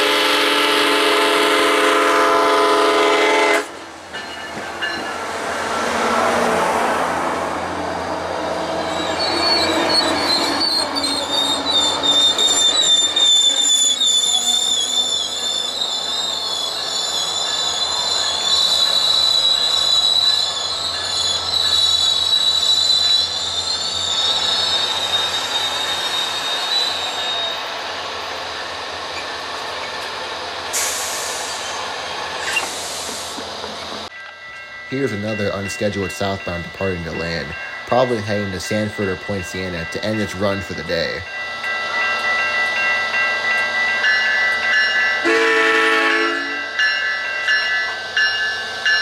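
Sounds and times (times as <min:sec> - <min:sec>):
train wheels squealing: 0:07.8 - 0:30.1, 0:30.7 - 0:41.2
short hiss: 0:30.8 - 0:31.8, 0:32.4 - 0:33.5.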